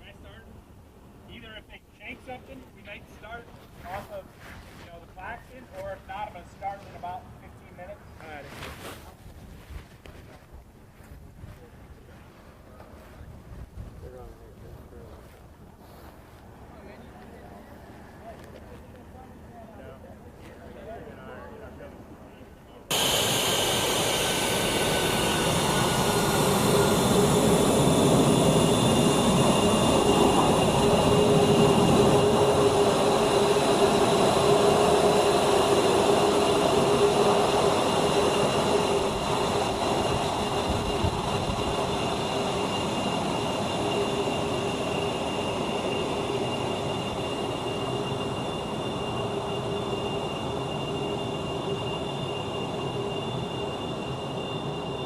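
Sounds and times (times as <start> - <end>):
jet engines whining: 22.9 - 55.0
rushing noise: 22.9 - 55.0.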